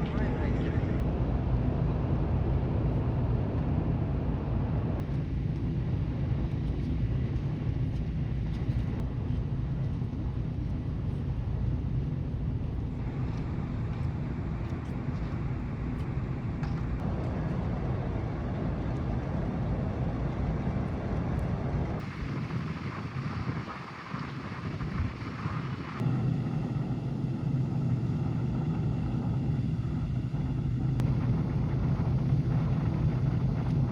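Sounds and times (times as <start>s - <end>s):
ferry engine low rumble: 0.0s - 33.9s
wind: 0.0s - 33.9s
water noise: 22.0s - 33.9s.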